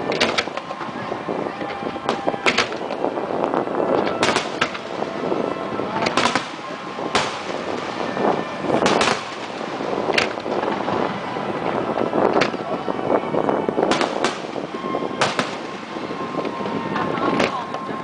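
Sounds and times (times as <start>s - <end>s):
continuous firework display noise: 0.0s - 18.0s
firework bangs: 2.0s - 3.1s, 4.0s - 12.7s, 13.8s - 17.5s.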